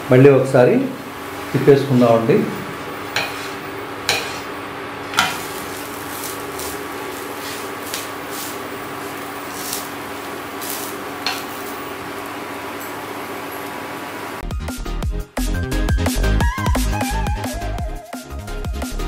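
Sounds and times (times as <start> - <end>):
flatbread sizzling in oil: 2.8 - 14.4
wooden spatula knocking on pan: 5.2 - 5.4.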